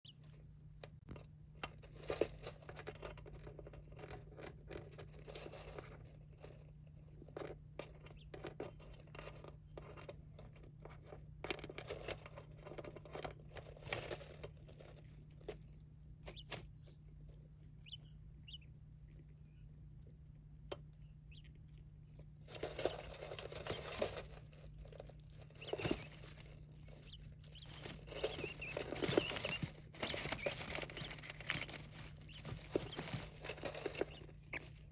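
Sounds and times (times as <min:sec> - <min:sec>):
birds scratching and pecking: 0:00.0 - 0:34.9
steady low hum: 0:00.0 - 0:34.9
faint bird peeps: 0:16.2 - 0:17.1, 0:17.7 - 0:19.8, 0:20.8 - 0:21.7, 0:25.5 - 0:34.8.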